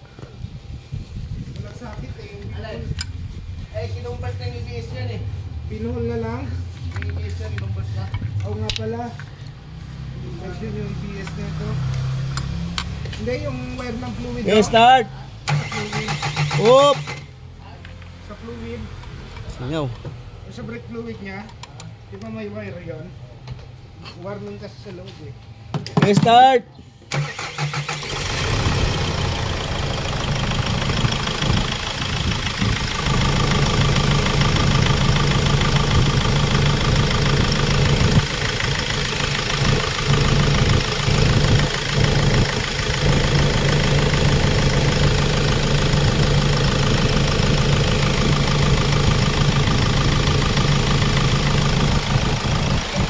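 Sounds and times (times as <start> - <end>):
diesel engine idling: 27.2 - 53.0.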